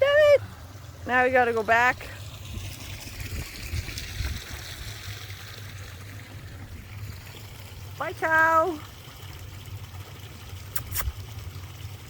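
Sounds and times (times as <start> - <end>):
wind buffeting microphone: 2.4 - 5.2.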